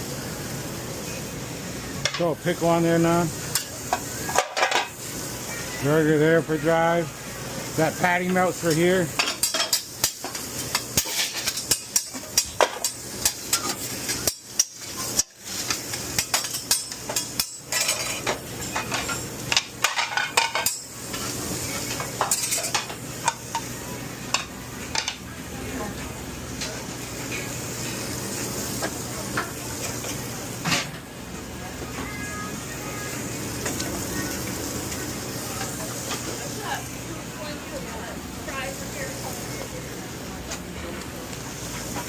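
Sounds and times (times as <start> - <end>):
meat sizzling: 0.0 - 42.0
metal utensils clattering on grill: 2.0 - 5.0, 8.1 - 25.2, 28.6 - 31.0.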